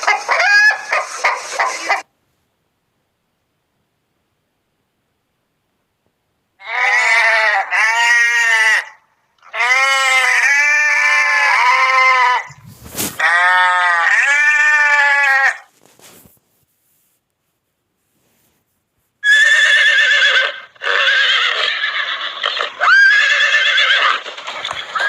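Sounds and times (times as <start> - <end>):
sheep or goats bleating: 6.6 - 15.7.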